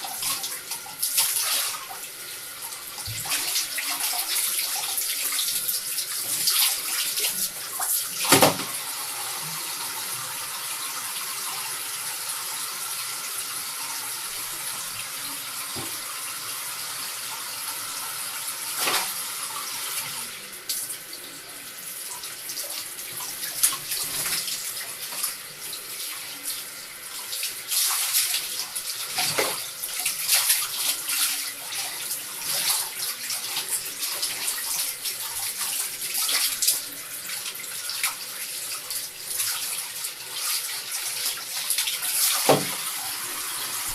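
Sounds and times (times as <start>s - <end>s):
tap water running into bath: 0.0s - 43.9s.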